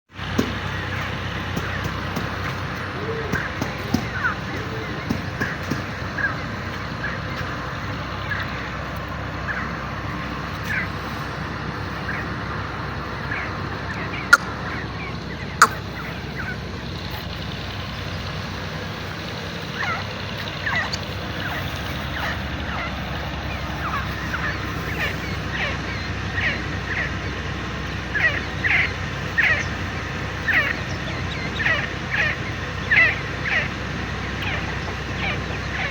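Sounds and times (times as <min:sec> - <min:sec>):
francolin calling: 0:00.2 - 0:35.9.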